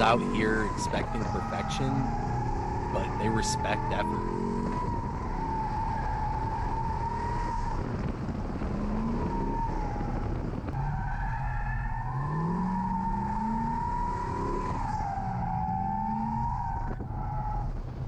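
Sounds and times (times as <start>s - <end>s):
car engine revving: 0.0s - 18.0s
tire squeal: 0.0s - 18.0s.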